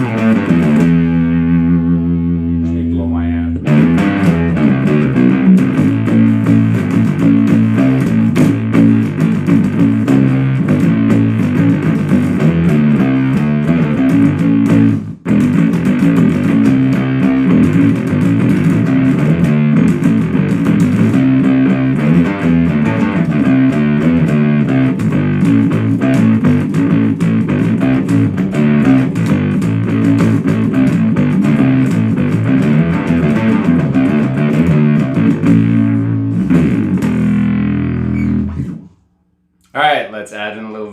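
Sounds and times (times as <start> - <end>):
fuzz-distorted guitar riffs: 0.0 - 39.1.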